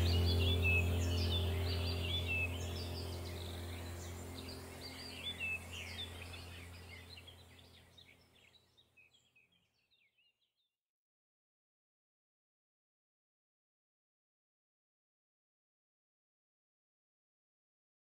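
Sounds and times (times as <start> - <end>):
low steady hum: 0.0 - 9.3
birds chirping: 0.0 - 10.3.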